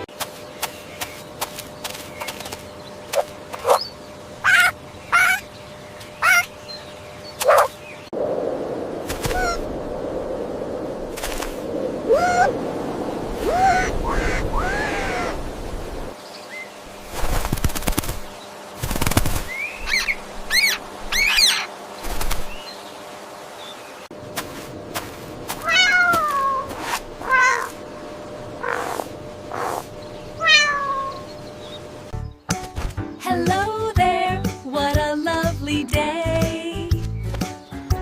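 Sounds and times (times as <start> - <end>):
cat meowing: 25.6 - 27.7, 30.4 - 31.2.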